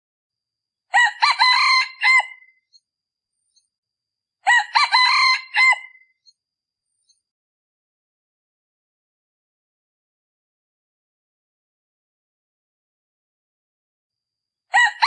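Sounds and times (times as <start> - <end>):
rooster crowing: 0.9 - 2.5, 4.4 - 6.0, 14.7 - 15.0.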